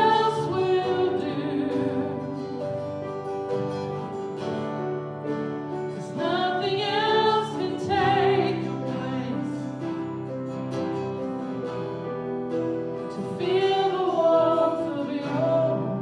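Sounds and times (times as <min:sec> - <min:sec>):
person singing with vibrato: 0:00.0 - 0:03.3, 0:05.9 - 0:10.3, 0:13.1 - 0:16.0.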